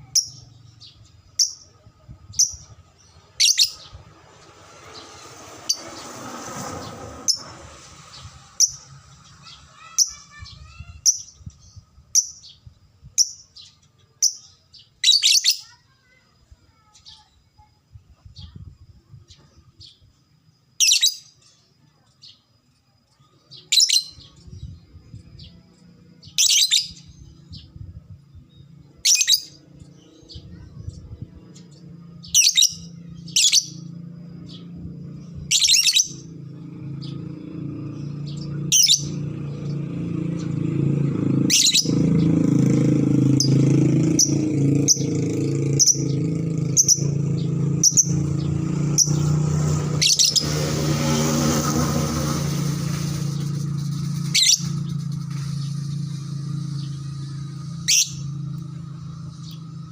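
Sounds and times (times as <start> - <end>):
low engine hum: 0.0 - 14.4, 23.2 - 59.9
lovebird shrill calls: 2.3 - 4.1, 35.5 - 36.3, 38.0 - 39.2, 50.0 - 50.5, 52.3 - 58.3.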